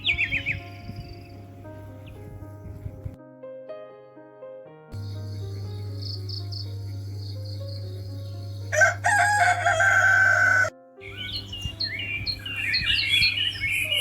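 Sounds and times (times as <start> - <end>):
crickets chirping: 0.0 - 3.1, 5.0 - 14.0
small birds chirping: 0.0 - 3.2, 5.0 - 14.0
rooster crowing: 8.7 - 10.7.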